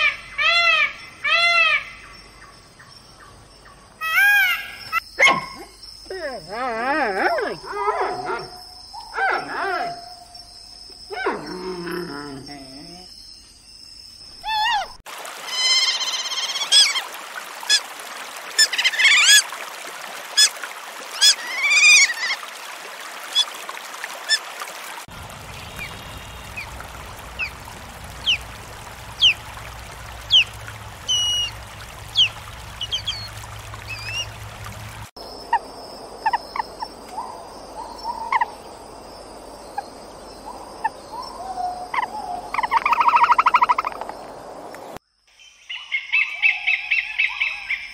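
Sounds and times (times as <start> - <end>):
wild animal calls and chirps: 3.2 - 13.5, 14.3 - 17.0, 28.2 - 34.4, 35.4 - 38.8, 39.6 - 44.3.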